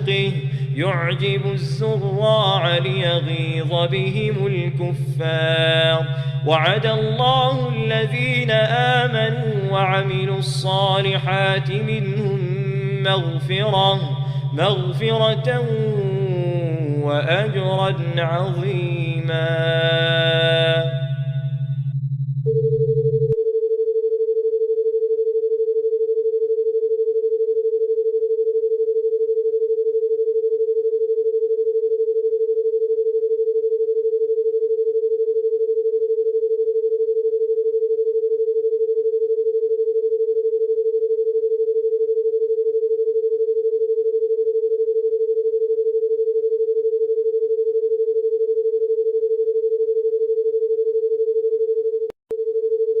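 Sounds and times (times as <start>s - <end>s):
steady electronic tone: 0.0s - 23.4s.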